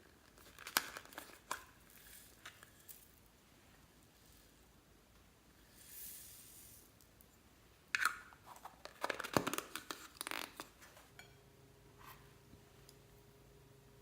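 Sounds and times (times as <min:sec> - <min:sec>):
crisp crackles and pops: 0:00.0 - 0:03.1, 0:08.8 - 0:10.9.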